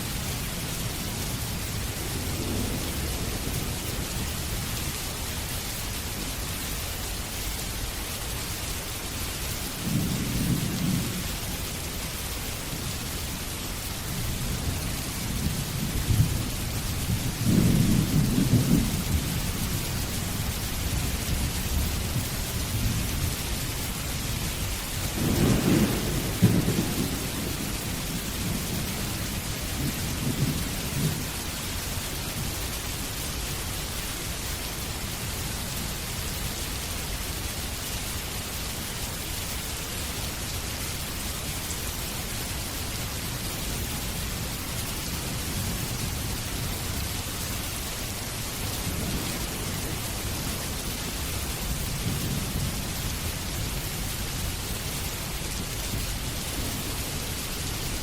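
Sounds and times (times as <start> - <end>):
heavy rain: 0.0 - 58.0
rolling thunder: 1.5 - 5.2, 9.8 - 11.5, 14.2 - 31.4.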